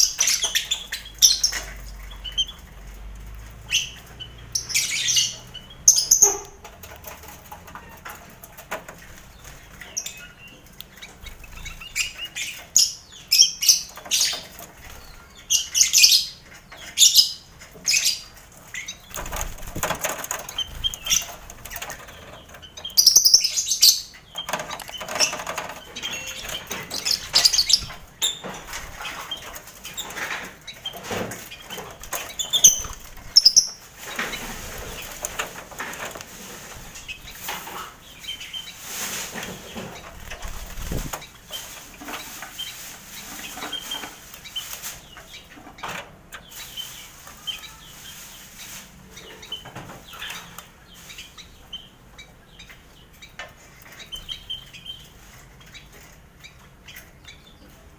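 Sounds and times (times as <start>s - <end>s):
wings flapping and rustling: 0.0s - 51.4s
birds chirping and squawking: 0.0s - 57.9s.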